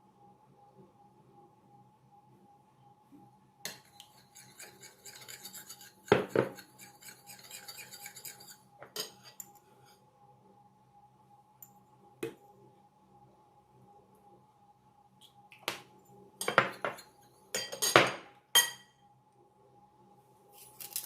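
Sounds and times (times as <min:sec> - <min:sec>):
cookware clattering: 0:17.6 - 0:18.8.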